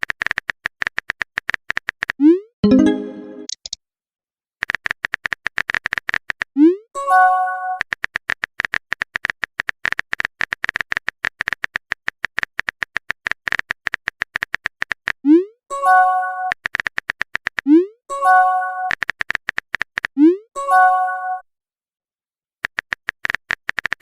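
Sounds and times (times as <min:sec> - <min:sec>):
chiming message-sent tone: 0:02.6 - 0:03.5, 0:18.1 - 0:18.9, 0:20.6 - 0:21.4.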